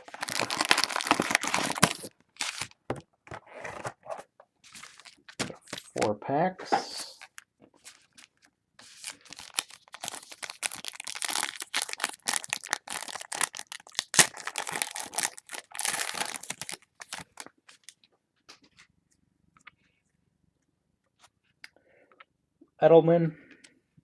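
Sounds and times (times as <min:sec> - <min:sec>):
foil wrapper tearing and crinkling: 0:00.0 - 0:02.8, 0:04.7 - 0:06.0, 0:07.0 - 0:18.0.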